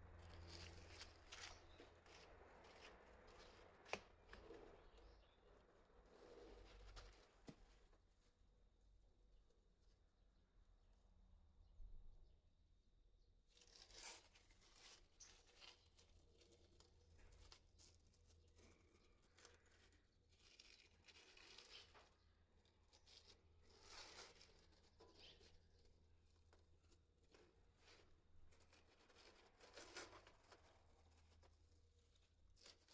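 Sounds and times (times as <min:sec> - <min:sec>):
paper rustling: 0:00.2 - 0:04.9, 0:23.0 - 0:32.9.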